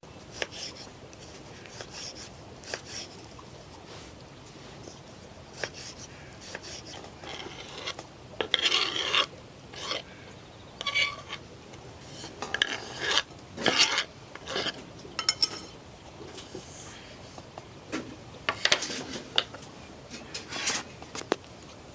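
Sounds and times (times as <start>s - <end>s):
faint steady hiss: 0.0s - 12.6s, 13.2s - 21.9s
short scraping and rubbing: 10.8s - 11.4s.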